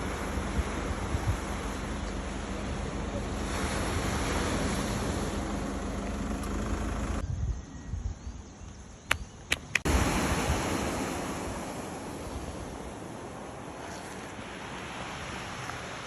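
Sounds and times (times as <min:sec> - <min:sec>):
surf-like noise: 0:00.0 - 0:07.2, 0:09.8 - 0:16.0
wind buffeting microphone: 0:00.0 - 0:08.5.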